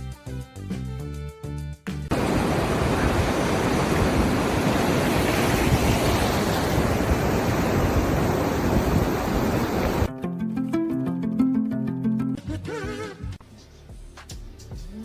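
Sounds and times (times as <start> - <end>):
loud steady rushing noise: 2.1 - 10.1
plucked-note music: 10.1 - 12.4.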